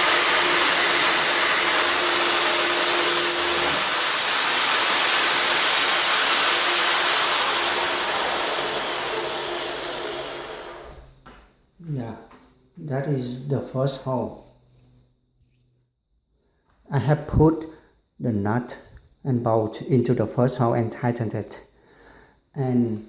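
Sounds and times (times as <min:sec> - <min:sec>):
electric drill whining: 0:00.0 - 0:11.2.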